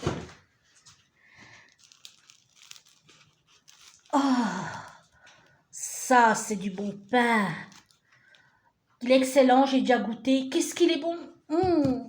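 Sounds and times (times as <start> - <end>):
crusty bread crinkling: 0.6 - 5.6, 6.5 - 8.6.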